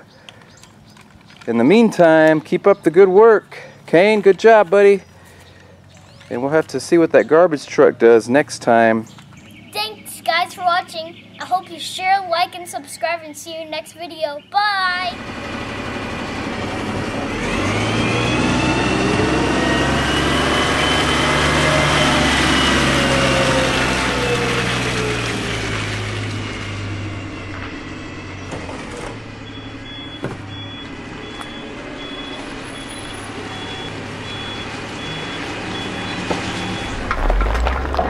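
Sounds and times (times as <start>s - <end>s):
truck engine passing: 14.8s - 38.0s
high-pitched reversing beep: 29.4s - 37.2s.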